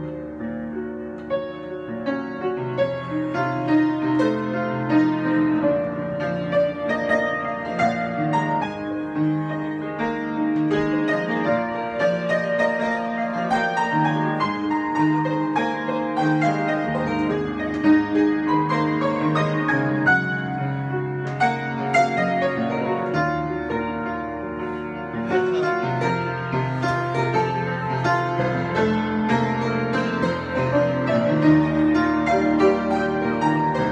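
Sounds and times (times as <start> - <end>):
piano improvisation: 0.0 - 33.9.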